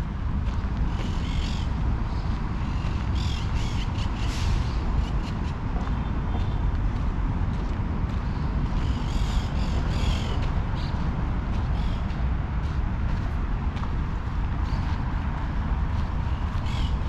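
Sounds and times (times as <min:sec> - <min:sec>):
birds calling: 0:01.0 - 0:06.6, 0:08.2 - 0:12.1, 0:16.2 - 0:17.0.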